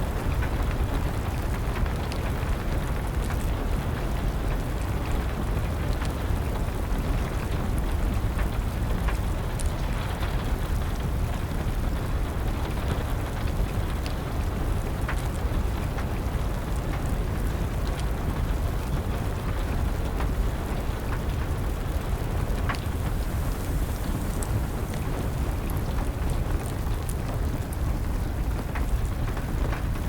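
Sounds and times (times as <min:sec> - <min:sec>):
rain patter: 0:00.0 - 0:30.0
wood fire crackling: 0:16.0 - 0:30.0.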